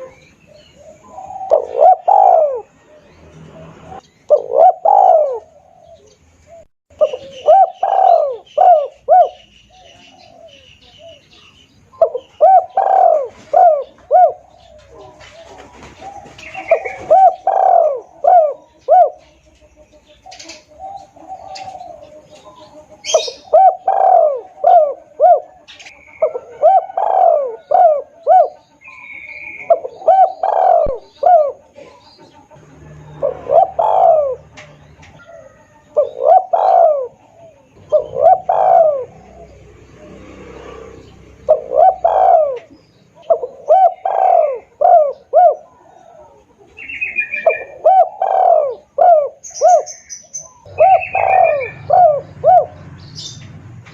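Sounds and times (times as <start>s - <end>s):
dove cooing: 0.0s - 53.4s
small birds chirping: 0.0s - 53.9s.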